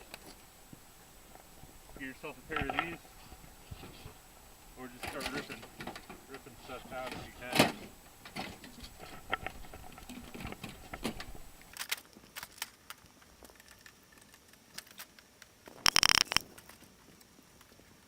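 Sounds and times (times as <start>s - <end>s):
wire snips and clicks: 15.9s - 16.4s.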